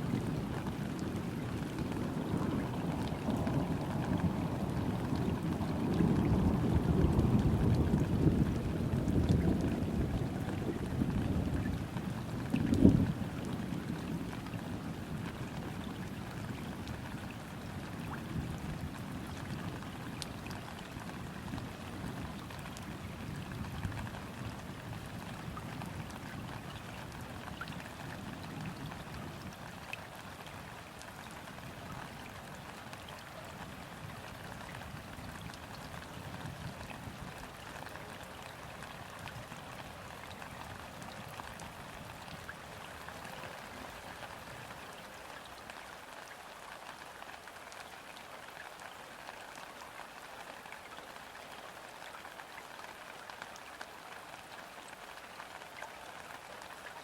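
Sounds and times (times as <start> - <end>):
gentle rain on river water: 0.0 - 57.0.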